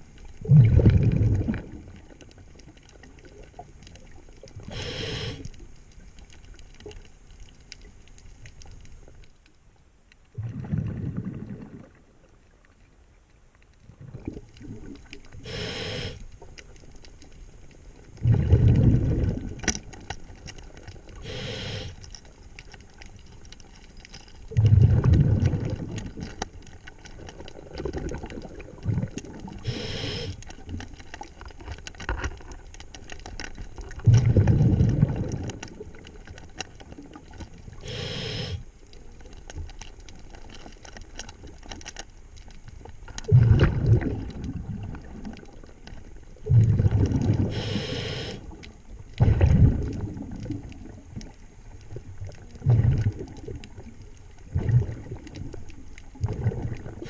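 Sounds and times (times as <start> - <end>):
exhaled bubbles burbling: 0.0 - 5.4, 10.3 - 12.3, 13.8 - 16.2, 18.1 - 20.1, 24.4 - 30.8, 33.7 - 38.6, 43.1 - 57.0
scuba regulator inhale hiss: 4.6 - 5.6, 15.4 - 16.3, 21.2 - 22.1, 29.6 - 30.5, 37.8 - 38.7, 47.4 - 48.6.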